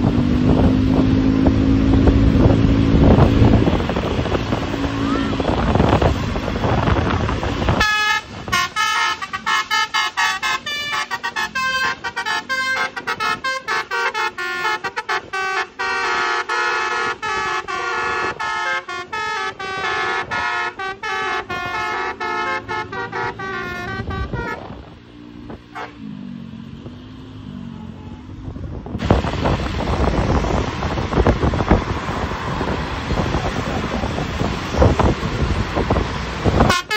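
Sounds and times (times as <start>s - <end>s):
wind noise: 0.0s - 16.0s, 16.9s - 25.9s, 28.3s - 36.9s
musical air horn melody: 7.8s - 24.8s, 25.7s - 26.0s, 36.6s - 36.9s.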